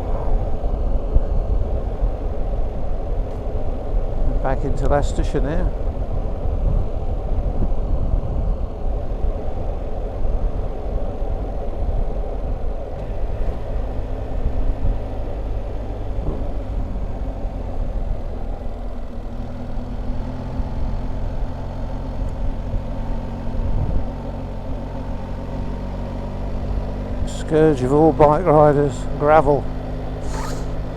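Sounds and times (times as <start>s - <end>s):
wind rushing on microphone: 0.0s - 19.3s, 22.3s - 24.8s
motorcycle engine running: 0.0s - 30.9s.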